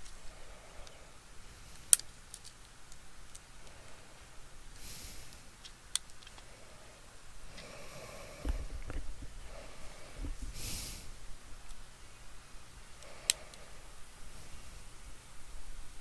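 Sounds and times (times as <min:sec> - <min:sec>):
short breathy hisses: 0:06.6 - 0:11.3
dull knocks: 0:08.4 - 0:11.0.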